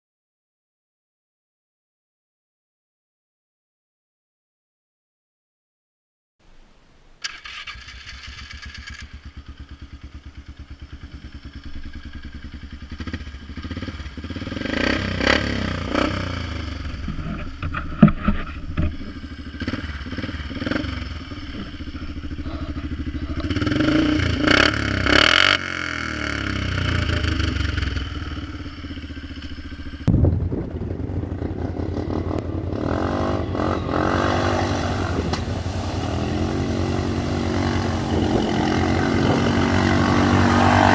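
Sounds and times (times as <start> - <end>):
atv engine idling and revving: 7.3 - 40.9
sharp engine bang: 30.1 - 38.2.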